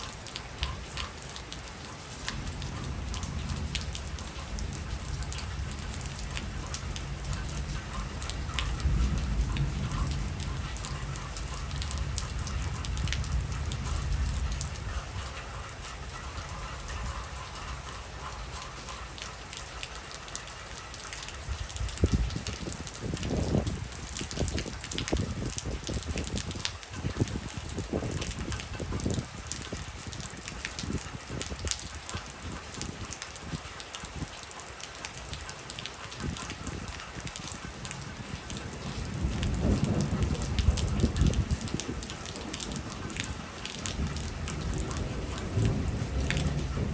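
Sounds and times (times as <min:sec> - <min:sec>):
heavy rain pouring: 0:00.0 - 0:46.9.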